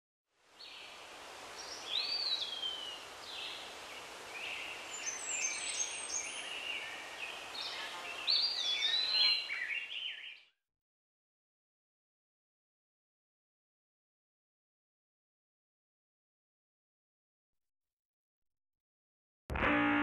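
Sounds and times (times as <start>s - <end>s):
steady outdoor hiss: 0.3s - 10.1s
birds chirping and whistling: 7.6s - 10.4s.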